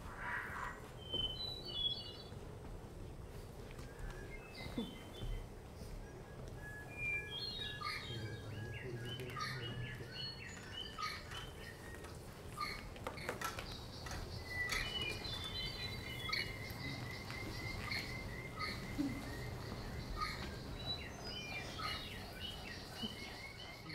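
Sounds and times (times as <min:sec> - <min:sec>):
bird chirping and trilling: 0:06.1 - 0:23.9.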